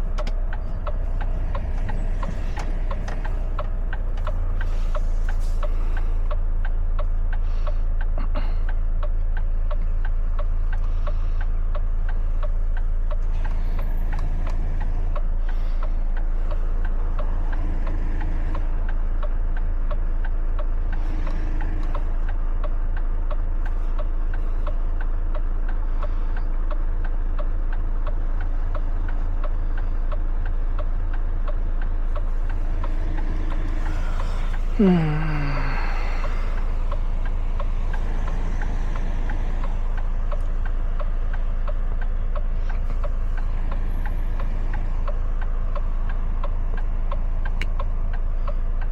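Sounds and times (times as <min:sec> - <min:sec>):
diesel engine humming: 0:00.0 - 0:48.9
turn signal ticking: 0:00.0 - 0:48.9.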